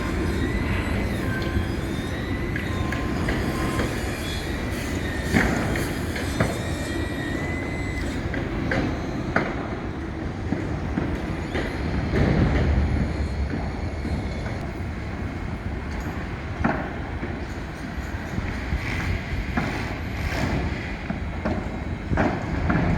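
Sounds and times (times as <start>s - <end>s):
thin high whine: 0.0s - 9.8s
low city rumble: 0.0s - 22.9s.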